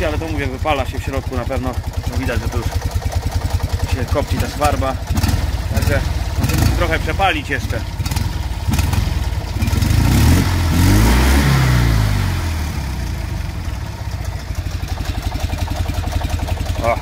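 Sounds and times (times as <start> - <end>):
small car engine revving and idling: 0.0 - 17.0.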